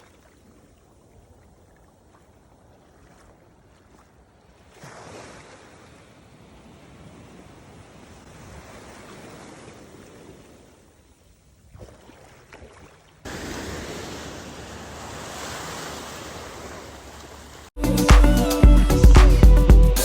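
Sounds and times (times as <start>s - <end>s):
ocean surf washing: 4.6s - 11.0s, 13.2s - 17.8s.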